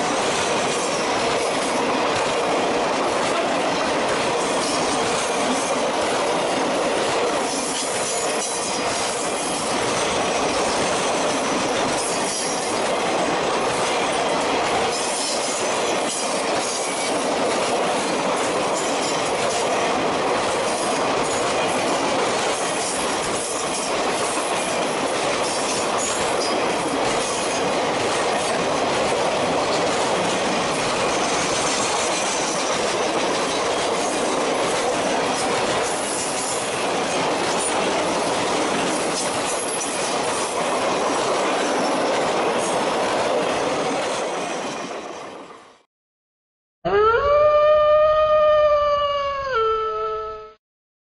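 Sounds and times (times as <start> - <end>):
freight train rolling: 0.0 - 45.8
steel wheels on rails: 0.0 - 45.8
rising howl: 46.9 - 50.6.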